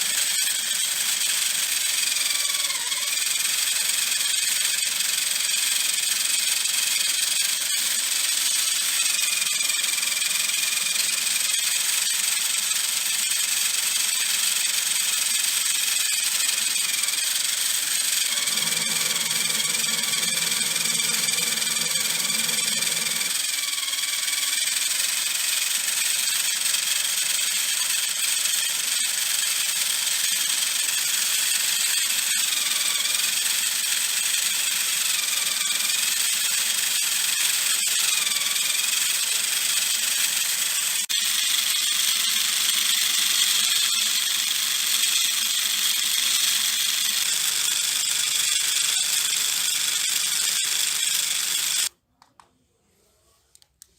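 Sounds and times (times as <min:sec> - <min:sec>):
electric motor whine: 0:00.0 - 0:51.9.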